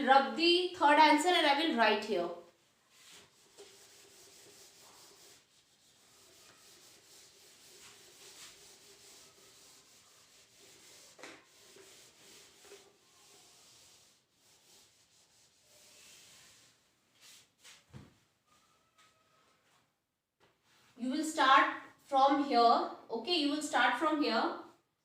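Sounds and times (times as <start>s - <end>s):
duster rubbing on writing board: 2.5s - 17.8s.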